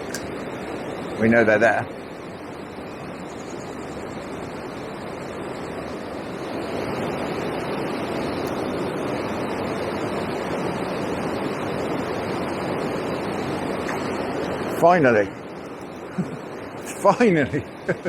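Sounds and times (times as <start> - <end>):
river water rushing over weir: 4.0 - 17.9.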